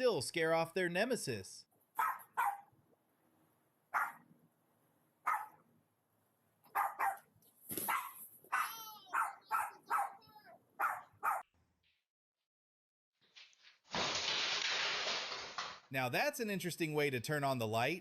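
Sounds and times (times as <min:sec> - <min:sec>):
dog yelping: 0:02.0 - 0:02.7, 0:03.9 - 0:04.2, 0:05.3 - 0:05.6, 0:06.7 - 0:11.4
dogs barking: 0:02.0 - 0:02.7, 0:03.9 - 0:04.3, 0:05.2 - 0:05.6, 0:06.7 - 0:11.5.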